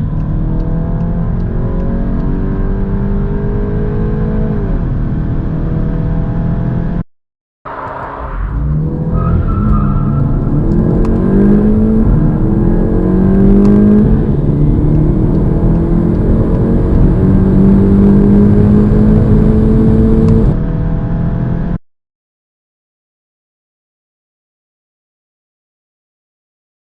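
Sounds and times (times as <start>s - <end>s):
car engine accelerating: 0.0s - 7.0s, 7.7s - 21.8s.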